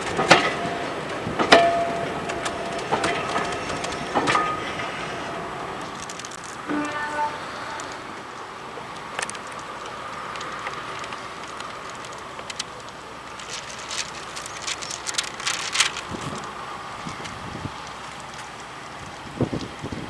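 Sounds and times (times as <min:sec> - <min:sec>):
train whistle: 0:00.0 - 0:06.0, 0:06.6 - 0:08.5
train running noise: 0:00.0 - 0:20.0.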